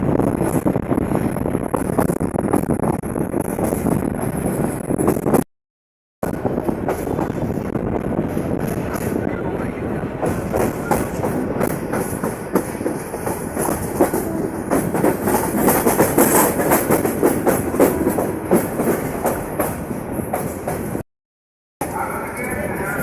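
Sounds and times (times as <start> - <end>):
train wheels clattering on rails: 6.4 - 9.2, 10.2 - 21.0.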